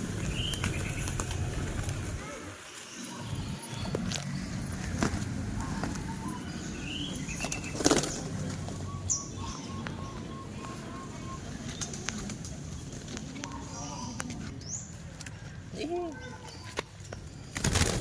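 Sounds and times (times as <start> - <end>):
pigeon wings flapping: 0.0 - 2.3, 7.4 - 8.6, 17.5 - 18.0.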